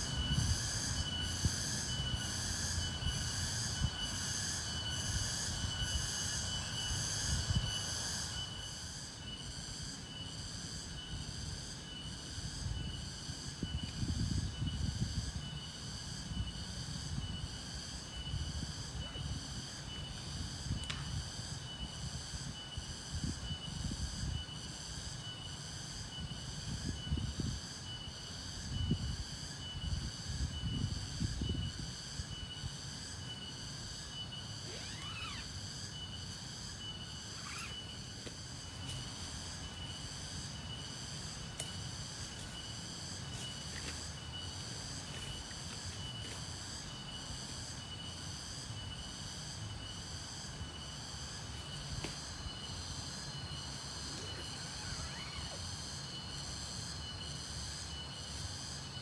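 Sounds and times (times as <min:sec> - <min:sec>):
thin high insect trill: 0:00.0 - 0:59.0
pulsing insect buzzing: 0:33.8 - 0:43.6, 0:49.2 - 0:56.3.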